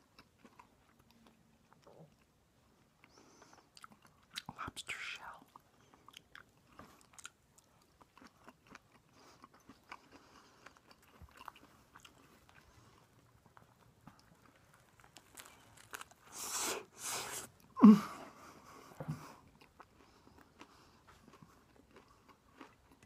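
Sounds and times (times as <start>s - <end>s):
person chewing: 0.0s - 4.6s, 5.2s - 17.7s, 18.6s - 23.0s.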